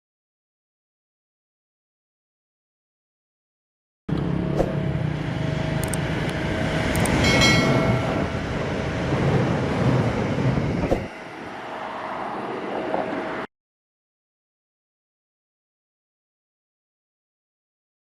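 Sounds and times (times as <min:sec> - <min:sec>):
diesel train engine rumble: 0:04.1 - 0:13.5
train wheels clicking: 0:05.8 - 0:08.4.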